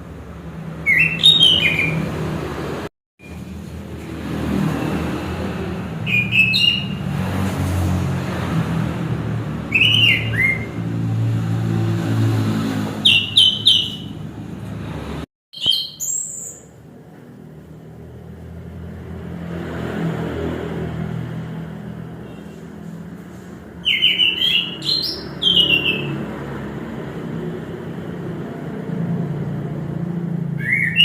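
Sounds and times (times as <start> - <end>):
bird singing whistled phrases: 0.9 - 2.0, 6.1 - 7.0, 9.7 - 10.8, 13.0 - 14.1, 15.6 - 16.7, 23.8 - 26.1, 30.6 - 31.0.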